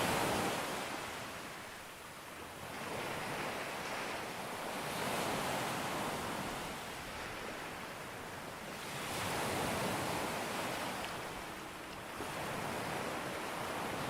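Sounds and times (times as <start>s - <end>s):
ocean waves breaking: 2.6s - 14.0s.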